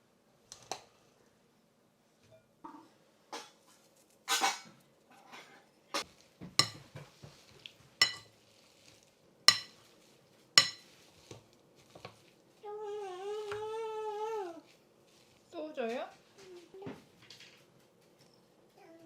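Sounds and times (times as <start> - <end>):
utensils clinking against dishes: 4.3 - 4.7, 6.0 - 7.0, 8.0 - 8.3, 9.5 - 9.8, 10.6 - 10.9.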